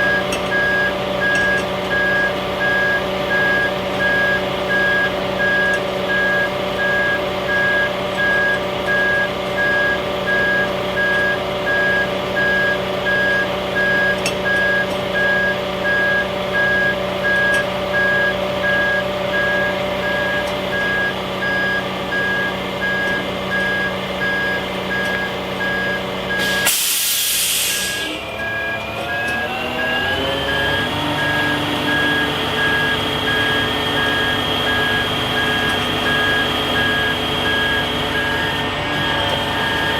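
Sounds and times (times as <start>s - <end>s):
diesel engine idling: 0.0s - 39.9s
truck reverse alarm beeping: 0.0s - 39.9s
air brake hiss: 26.4s - 28.2s.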